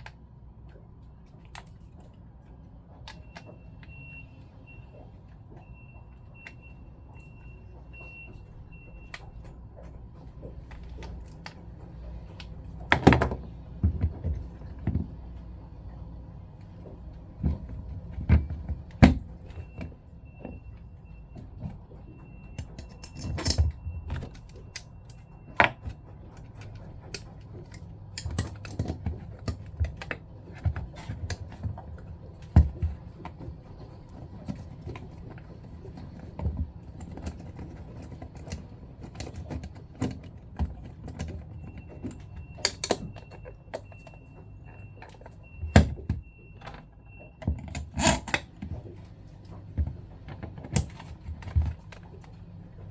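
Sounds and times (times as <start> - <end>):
tools and pump parts clicking: 21.3 - 52.9.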